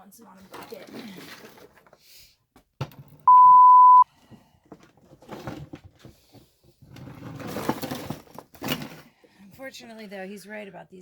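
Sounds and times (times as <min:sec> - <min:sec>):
censor bleep: 0:03.3 - 0:04.0.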